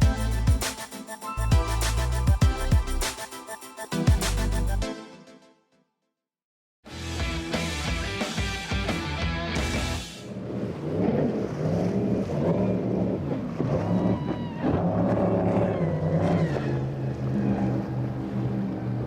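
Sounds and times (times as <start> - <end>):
motorboat engines running: 10.3 - 19.0.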